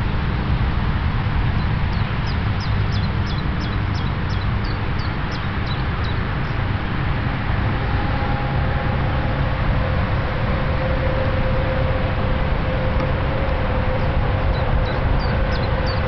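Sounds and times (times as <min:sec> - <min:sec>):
faint steady hum: 0:00.0 - 0:16.0
low rumbling background noise: 0:00.0 - 0:16.0
small bird calling: 0:01.9 - 0:06.6, 0:14.4 - 0:16.0.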